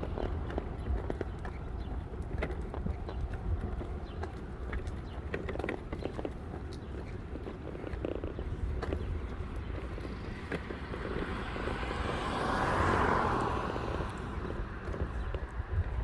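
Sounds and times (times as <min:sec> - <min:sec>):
wind rumble on microphone: 0:00.0 - 0:16.0
vehicle passing: 0:09.6 - 0:16.0.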